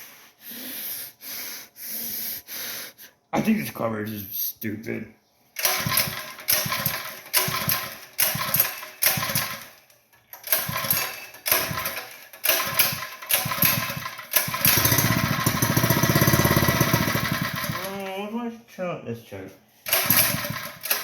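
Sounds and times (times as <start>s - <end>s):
small engine pull-started: 5.6s - 18.2s, 19.8s - 21.0s
small engine running: 5.6s - 18.2s, 19.8s - 21.0s.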